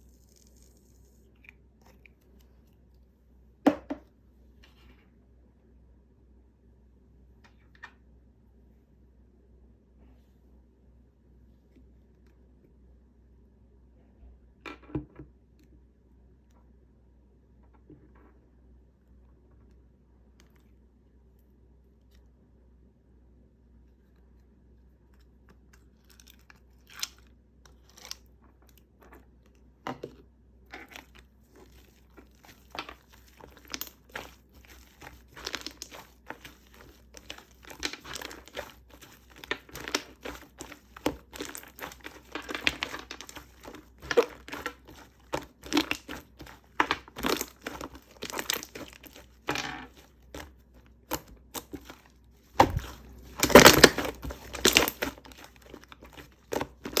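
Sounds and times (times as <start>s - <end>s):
paper or plastic crinkling: 0.0s - 1.2s, 30.9s - 57.0s.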